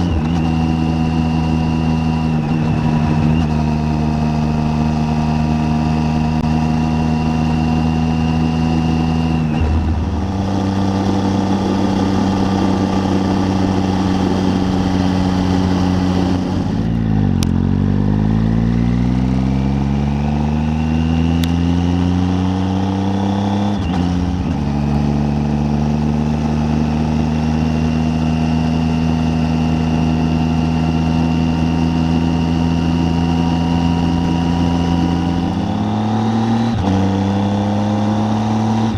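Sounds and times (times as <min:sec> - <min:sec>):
motorcycle engine under way: 0:00.0 - 0:38.9.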